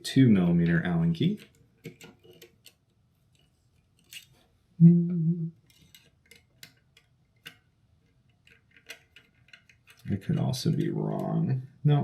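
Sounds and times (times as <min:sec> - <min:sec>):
person humming: 0:04.8 - 0:05.6
allen key clicking in metal: 0:08.3 - 0:10.2.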